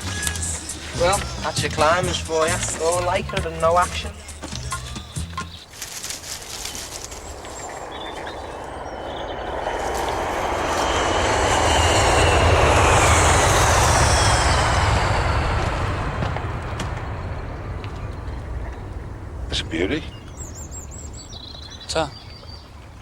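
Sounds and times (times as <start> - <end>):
aircraft passing overhead: 0.0 - 4.6, 5.6 - 23.0
high falling whine: 6.4 - 21.4.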